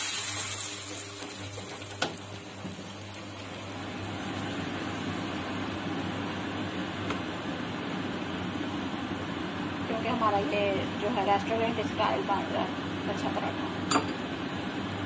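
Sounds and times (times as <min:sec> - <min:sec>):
ghee sizzling on a hot griddle: 0:00.0 - 0:04.8.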